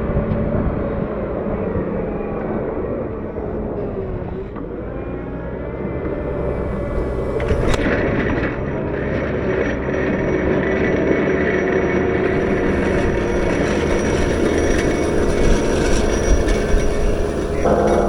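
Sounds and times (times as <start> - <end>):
wheel loader diesel engine: 4.1 - 9.9, 11.4 - 18.0.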